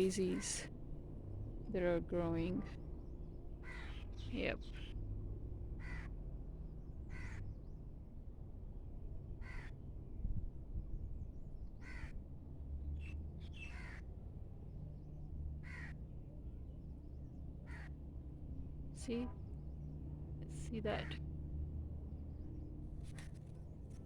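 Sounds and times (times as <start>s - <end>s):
bird calling: 0.0s - 0.6s.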